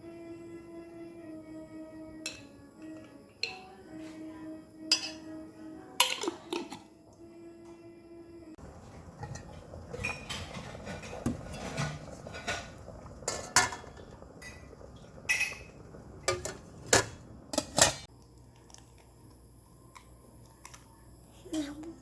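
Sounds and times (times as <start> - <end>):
dishes and utensils clinking: 2.3 - 4.2, 4.9 - 5.3, 6.0 - 6.9, 8.8 - 18.1.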